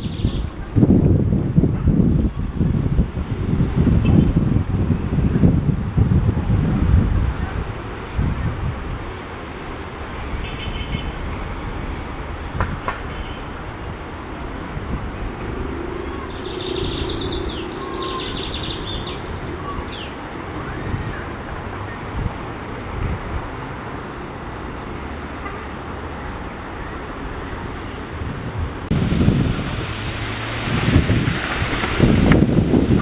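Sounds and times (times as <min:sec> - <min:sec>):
bird singing buzzy trills: 0:00.0 - 0:00.5, 0:07.4 - 0:21.2
wind on microphone: 0:00.0 - 0:33.0.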